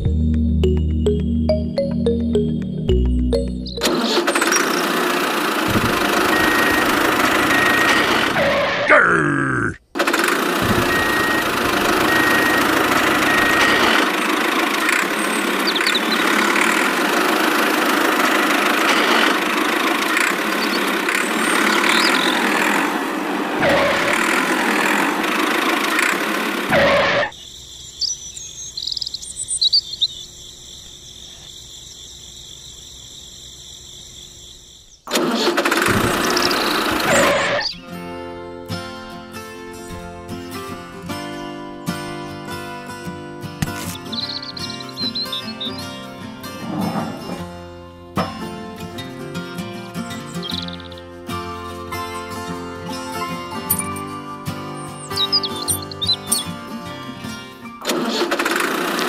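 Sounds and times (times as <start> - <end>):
tractor engine running: 0.0 - 8.9, 9.9 - 30.0, 30.6 - 59.0
faint high chirps: 51.9 - 56.6.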